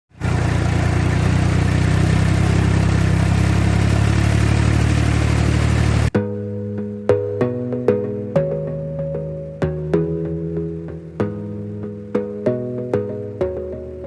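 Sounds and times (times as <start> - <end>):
tractor engine droning: 0.1 - 6.2
music: 6.1 - 14.0.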